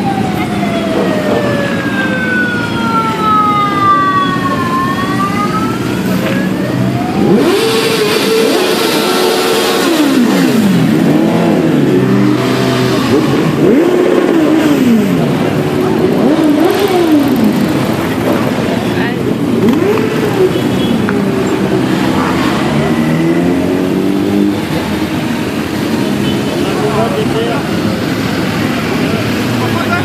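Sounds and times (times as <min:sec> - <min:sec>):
siren wailing: 0:00.0 - 0:18.9
motorcycle engines revving: 0:00.0 - 0:30.0.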